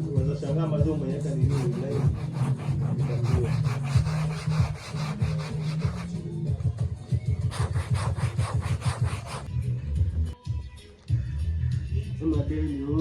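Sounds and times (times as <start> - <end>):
background music: 0.0 - 13.0
scrubbing strokes: 1.3 - 6.2, 7.5 - 9.5.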